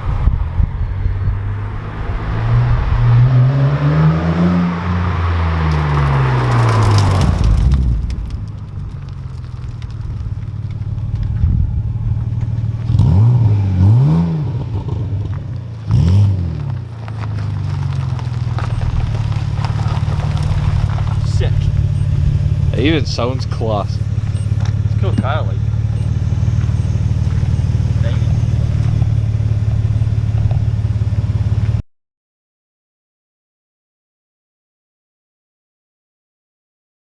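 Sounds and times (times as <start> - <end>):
car engine revving and idling: 0.0 - 31.8
engine throttle blips: 0.0 - 31.8.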